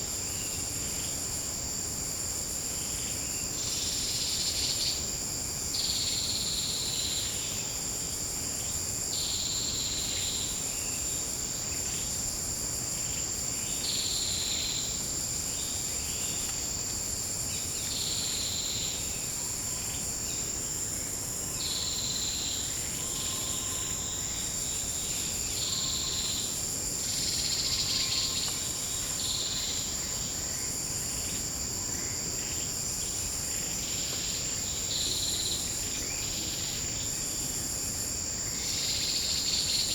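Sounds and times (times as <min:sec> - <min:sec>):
high-pitched insect drone: 0:21.0 - 0:39.9.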